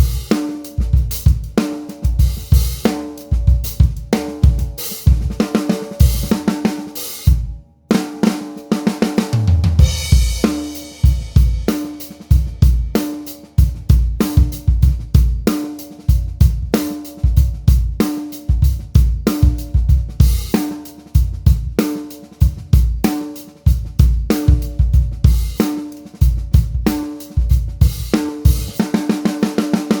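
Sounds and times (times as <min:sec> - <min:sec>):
drum kit playing a groove: 0:00.0 - 0:30.0
snare drum ringing: 0:01.6 - 0:07.2
cymbal crash: 0:04.0 - 0:13.3.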